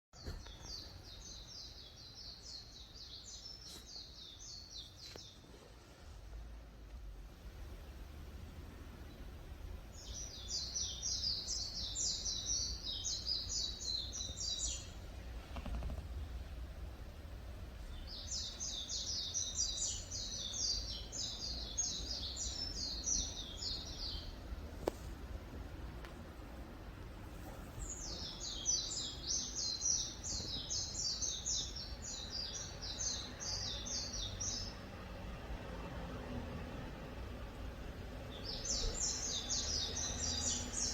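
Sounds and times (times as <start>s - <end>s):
songbird singing: 0.2s - 5.8s, 9.0s - 26.5s, 27.2s - 40.9s
low background hum: 0.3s - 40.9s
low background rumble: 5.9s - 32.2s.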